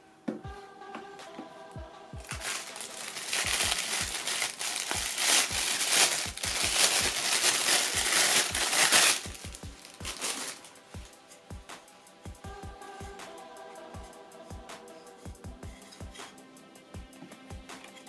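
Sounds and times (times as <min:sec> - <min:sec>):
background music with bass pulse: 0:00.0 - 0:18.0
packaging crinkling: 0:02.2 - 0:10.7.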